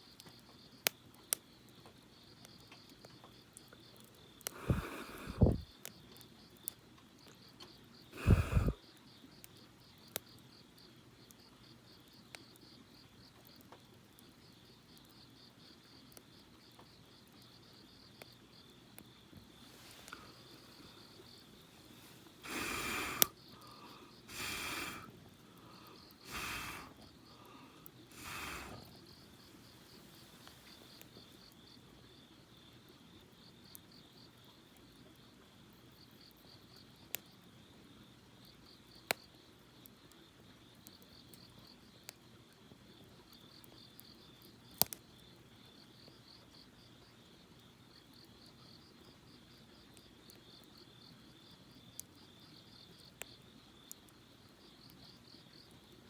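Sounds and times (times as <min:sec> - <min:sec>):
crickets chirping: 0:00.0 - 0:56.0
campfire pops and snaps: 0:02.4 - 0:07.4, 0:08.2 - 0:08.8, 0:19.0 - 0:31.6, 0:44.7 - 0:45.0
short noisy bursts: 0:24.3 - 0:25.1, 0:26.2 - 0:27.0, 0:28.1 - 0:28.8.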